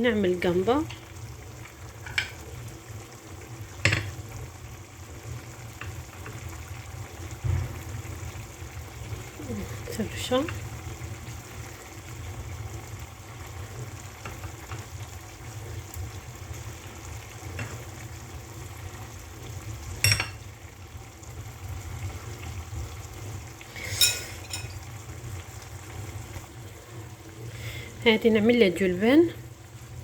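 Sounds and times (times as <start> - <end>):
faint sizzle in a pan: 0.0 - 30.0
metal utensils clinking on pan: 20.0 - 20.4, 23.8 - 24.8.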